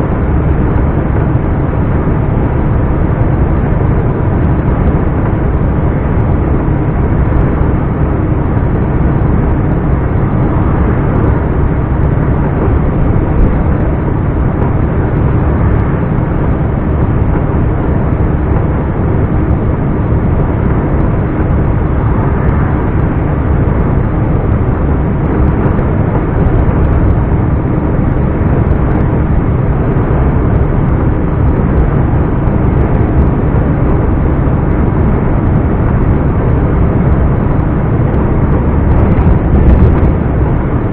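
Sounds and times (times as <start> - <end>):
road rumble: 0.0 - 40.9.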